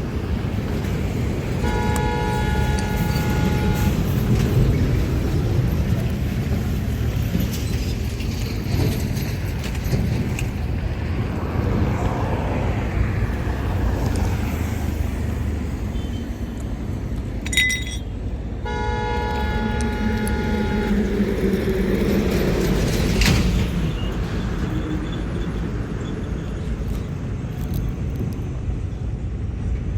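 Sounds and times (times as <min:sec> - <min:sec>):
traffic engines rumbling: 0:00.0 - 0:29.9
short horn toot: 0:01.6 - 0:04.0
two-toned horn blast: 0:01.6 - 0:04.4, 0:18.6 - 0:21.4.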